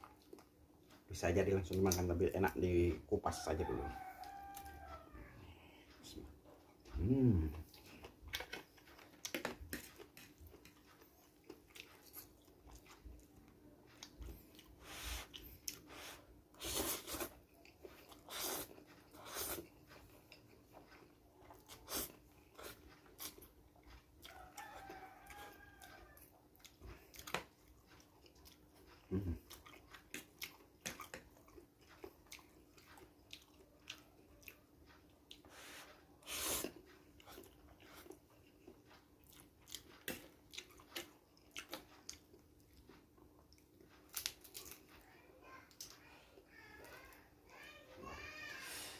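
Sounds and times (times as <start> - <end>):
faint steady hum: 0.0 - 48.9
chewing and mouth smacks: 5.8 - 35.5, 36.2 - 45.0
food crunching: 6.0 - 35.5, 36.2 - 45.1.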